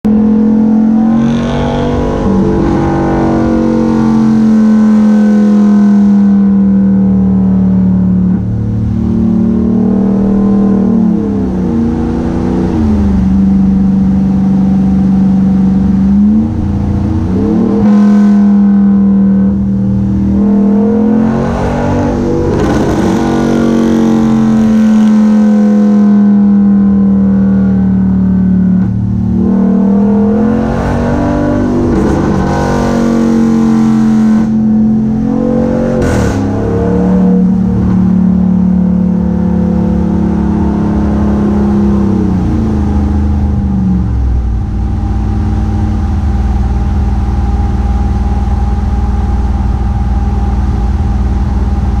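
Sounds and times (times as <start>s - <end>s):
car exhaust droning: 0.0s - 52.0s.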